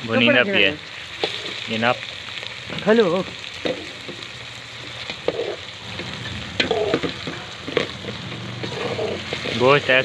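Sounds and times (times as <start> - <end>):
meat and onions sizzling: 0.0 - 10.0
metal spoon scraping a pot: 5.2 - 9.7.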